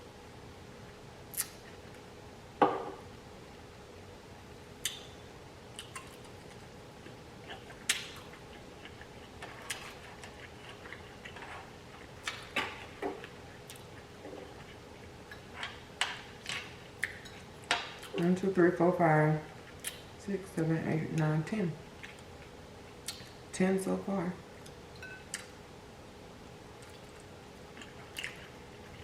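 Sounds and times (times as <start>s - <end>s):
faint steady hum: 0.0s - 29.0s
mouth clicks and smacks: 23.0s - 23.3s.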